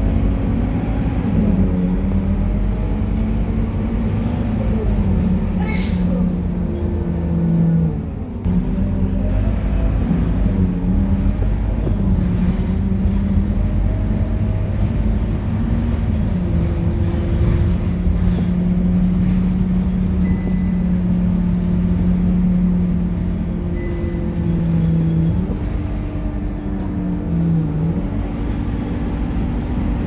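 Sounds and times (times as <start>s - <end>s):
bus diesel engine drone: 0.0s - 30.0s.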